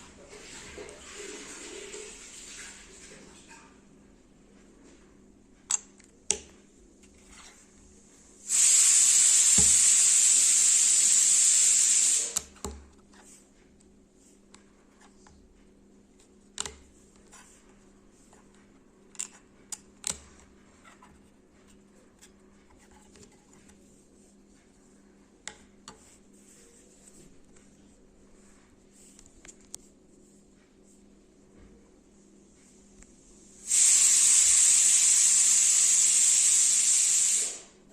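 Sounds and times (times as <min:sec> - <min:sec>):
loud steady hiss: 0:08.4 - 0:12.5, 0:33.4 - 0:37.8.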